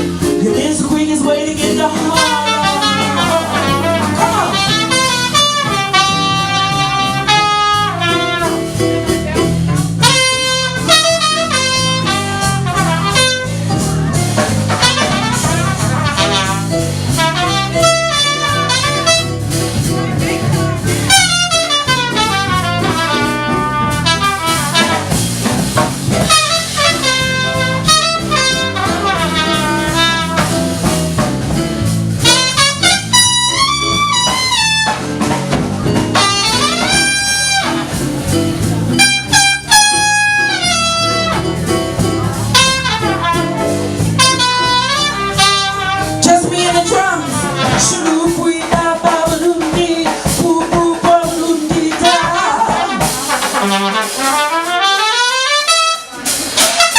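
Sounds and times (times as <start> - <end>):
bass: 0.0 - 56.9
drum kit: 0.0 - 56.9
horn solo: 2.0 - 9.0, 10.0 - 13.8, 14.7 - 19.8, 20.7 - 25.4, 26.2 - 31.0, 32.2 - 35.4, 36.1 - 41.7, 42.5 - 48.1, 52.0 - 56.9.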